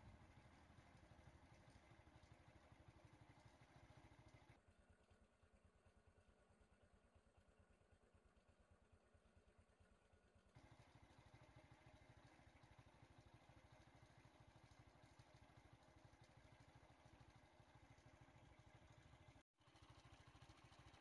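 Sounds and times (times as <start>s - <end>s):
faint vehicle engine idling: 0.0s - 21.0s.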